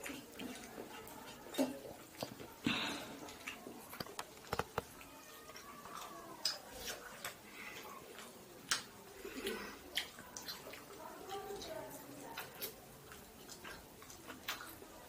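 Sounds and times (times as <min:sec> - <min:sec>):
chewing clicks and smacks: 0:03.2 - 0:15.0.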